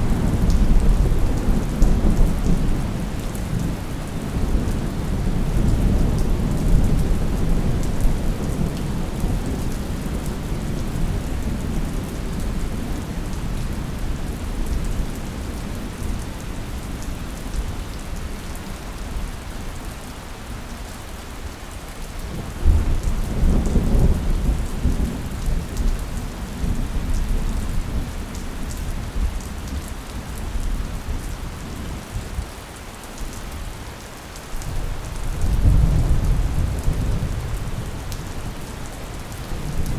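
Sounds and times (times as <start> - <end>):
steady rain falling: 0.0 - 39.9
rolling thunder: 34.7 - 39.9.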